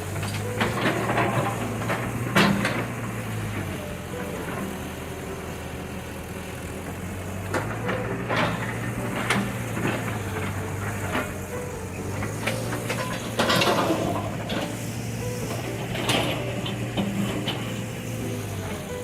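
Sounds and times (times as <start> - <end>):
excavator diesel engine running: 0.0 - 19.0
debris clanking and knocking: 7.5 - 14.8.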